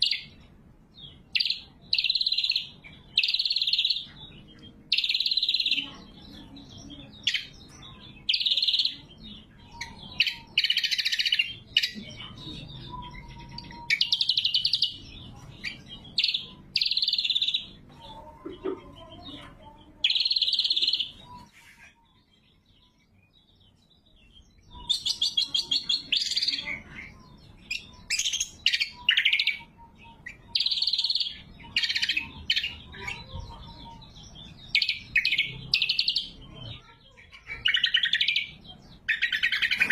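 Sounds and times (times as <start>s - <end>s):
bird singing sharp phrases: 0.0s - 39.9s.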